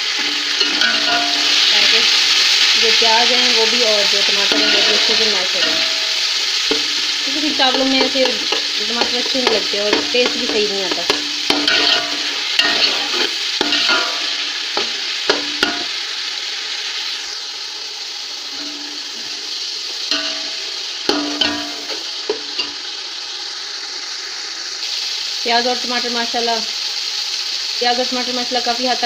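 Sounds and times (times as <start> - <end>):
masala sizzling in a pot: 0.0 - 29.0
metal spoon scraping a pot: 4.5 - 15.0.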